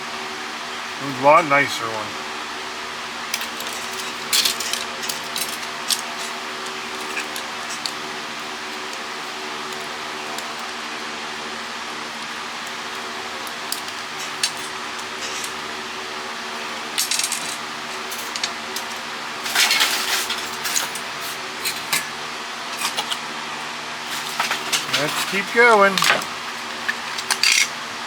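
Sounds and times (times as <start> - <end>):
steady background hum: 0.0 - 28.0
plastic and metal parts clattering: 3.3 - 10.6, 13.0 - 15.7, 16.9 - 22.1, 24.1 - 27.9.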